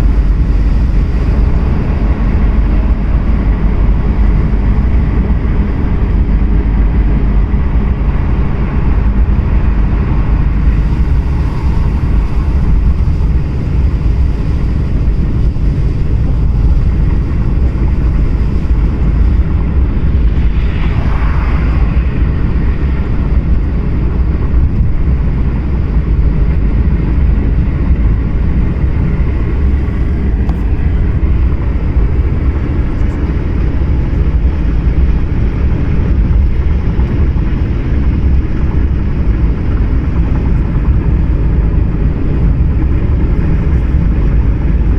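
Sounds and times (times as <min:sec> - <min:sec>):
car road and engine rumble: 0:00.0 - 0:44.9
vehicle passing swish: 0:16.4 - 0:24.7.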